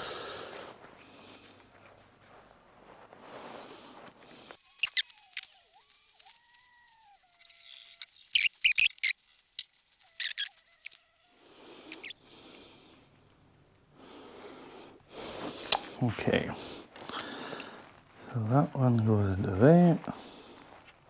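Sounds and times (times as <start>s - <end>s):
thin squeaky tones: 4.6s - 12.2s
metal fittings clicking: 4.7s - 6.7s, 7.4s - 11.0s, 11.8s - 12.1s.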